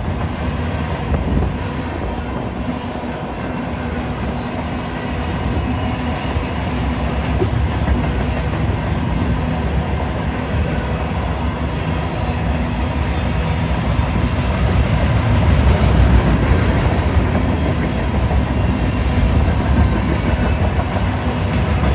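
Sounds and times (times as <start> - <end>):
freight train wheels rumbling: 0.0 - 21.9.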